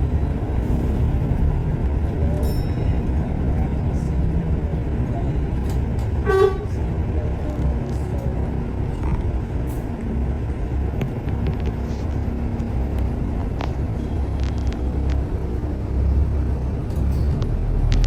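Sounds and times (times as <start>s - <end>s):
low rumble of traffic: 0.0s - 18.0s.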